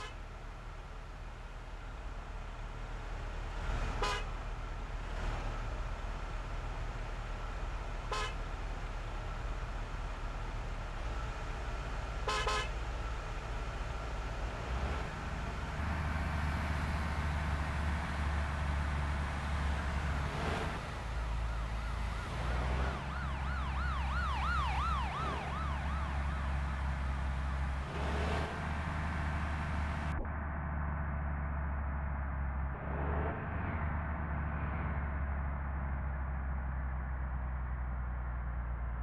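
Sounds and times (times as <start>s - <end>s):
truck engine humming: 0.0s - 33.3s
siren wailing: 21.2s - 27.2s.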